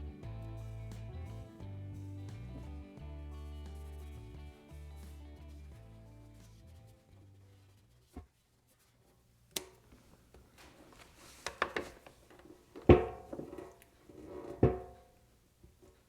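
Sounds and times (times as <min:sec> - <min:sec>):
clicks and knocks on workbench: 0:11.5 - 0:15.0.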